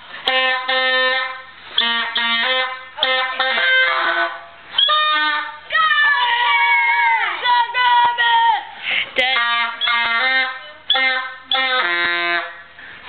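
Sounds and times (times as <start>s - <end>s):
child playing simple tune: 0.0s - 5.7s, 9.2s - 13.0s.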